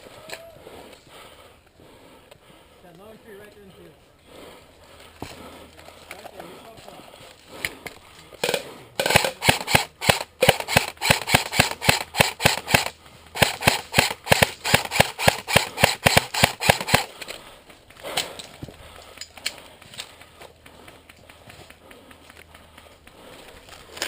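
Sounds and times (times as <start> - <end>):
airsoft rifle shots: 8.4 - 17.1.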